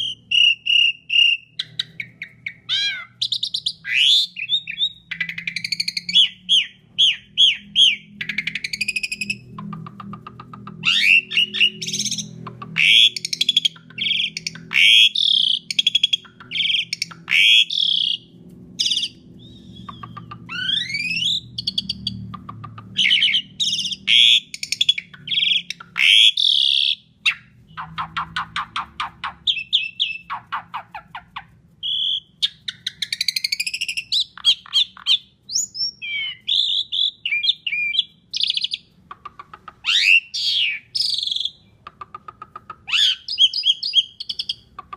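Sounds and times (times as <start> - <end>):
starling singing: 0.0 - 44.9.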